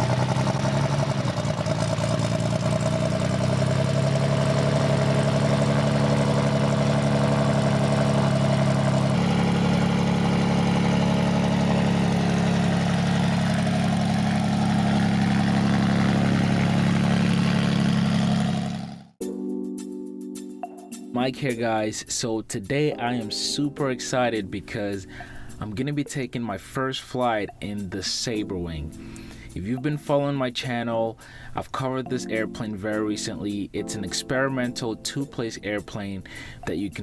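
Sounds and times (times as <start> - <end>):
light airplane engine running: 0.0 - 19.2.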